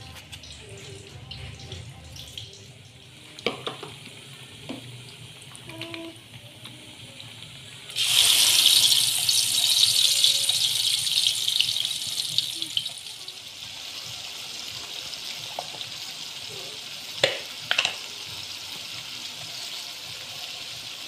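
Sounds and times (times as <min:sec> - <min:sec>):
paste sizzling in hot oil: 0:07.8 - 0:21.0
kitchen knocks and clicks: 0:17.2 - 0:18.0.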